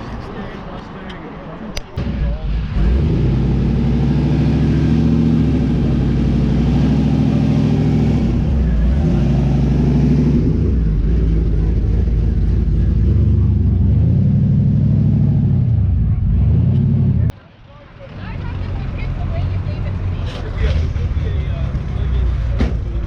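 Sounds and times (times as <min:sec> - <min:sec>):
car engine revving: 0:02.0 - 0:17.3.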